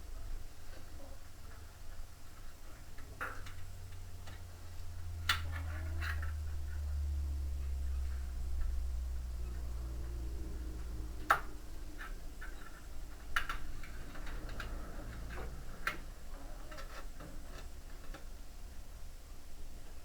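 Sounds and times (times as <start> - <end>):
low hum: 4.6 - 12.4.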